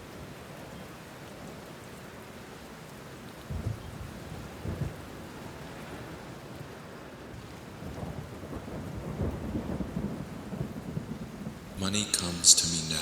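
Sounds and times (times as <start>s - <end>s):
steady rain: 0.0s - 13.0s
low rumbles of thunder: 7.9s - 11.6s.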